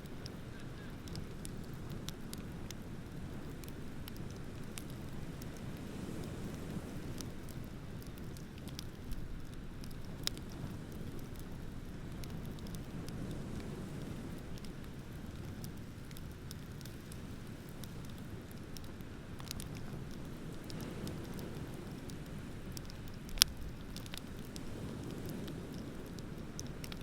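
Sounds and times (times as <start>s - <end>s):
bonfire crackling: 0.0s - 27.0s
burning wood popping: 0.0s - 27.0s
ocean waves rumbling: 19.4s - 27.0s.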